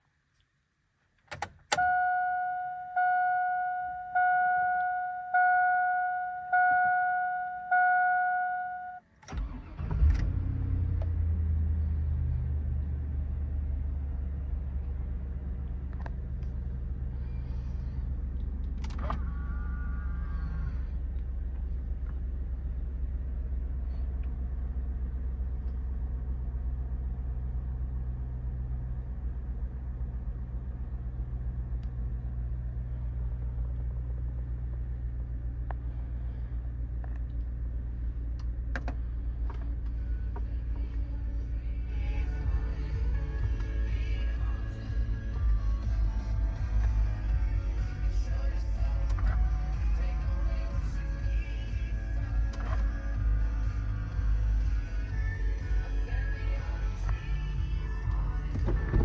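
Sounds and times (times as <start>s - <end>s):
car engine cranking and idling: 1.1s - 59.0s
dashboard warning chime: 1.7s - 9.1s.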